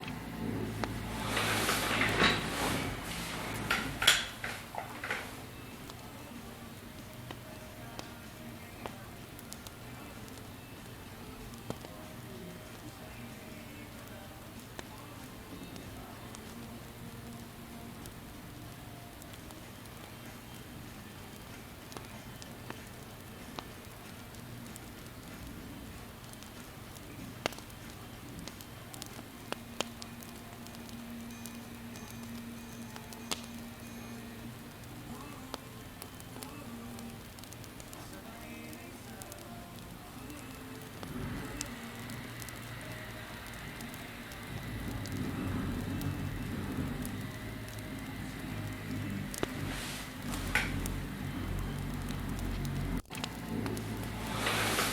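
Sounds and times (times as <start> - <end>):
low rumble: 0.0 - 4.0, 40.9 - 54.9
faint steady hum: 0.0 - 54.9
wood fire crackling: 0.0 - 54.9.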